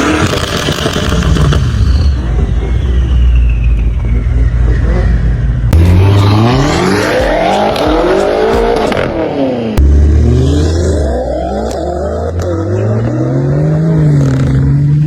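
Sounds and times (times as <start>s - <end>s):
deep engine rumble: 0.0s - 15.0s
engine revving: 4.0s - 15.0s.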